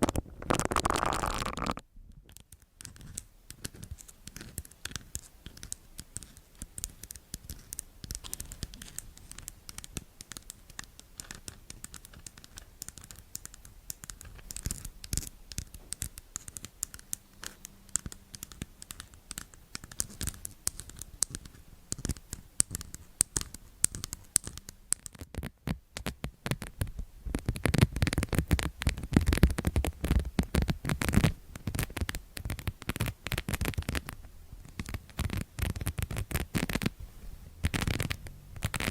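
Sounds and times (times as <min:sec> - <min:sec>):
close scratching and crackles: 0:00.0 - 0:38.9.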